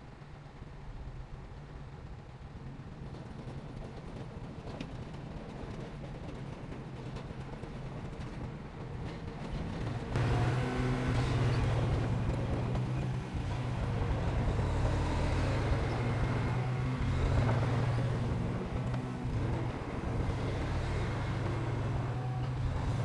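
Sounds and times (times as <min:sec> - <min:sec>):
diesel machinery engine hum: 0:09.7 - 0:23.0.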